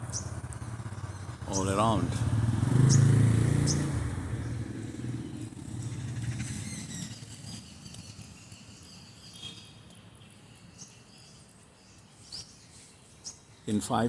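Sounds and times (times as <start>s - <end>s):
passing vehicle engine hum: 0.0s - 8.6s
faint sparrow chirps: 0.0s - 14.0s.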